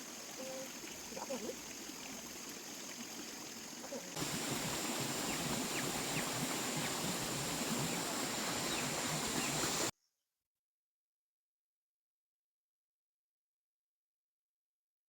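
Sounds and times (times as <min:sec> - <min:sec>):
running water rushing: 0:00.0 - 0:09.9.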